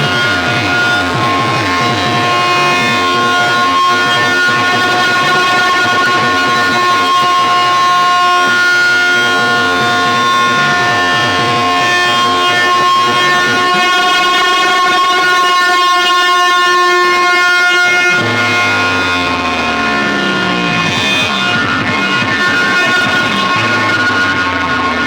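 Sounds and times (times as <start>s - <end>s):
loud electronic music: 0.0s - 8.6s, 9.2s - 16.8s, 17.4s - 25.0s.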